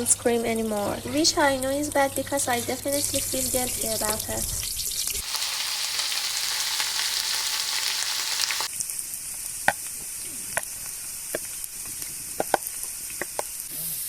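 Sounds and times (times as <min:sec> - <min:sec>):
omelette sizzling in a pan: 0:02.8 - 0:08.8.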